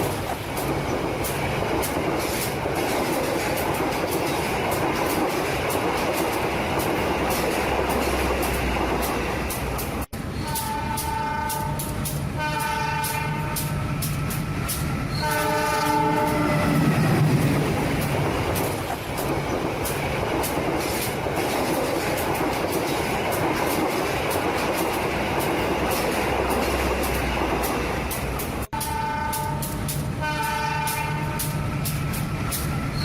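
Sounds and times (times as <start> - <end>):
train rumbling: 0.0 - 33.0
wheels clicking on rail joints: 0.0 - 33.0
train horn blast: 10.3 - 14.0, 15.1 - 16.9, 28.7 - 32.0.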